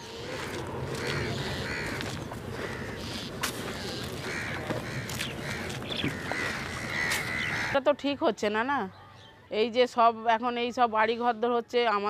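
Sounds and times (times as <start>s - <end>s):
crows cawing: 0.0s - 7.9s
outdoor background noise: 0.0s - 12.0s.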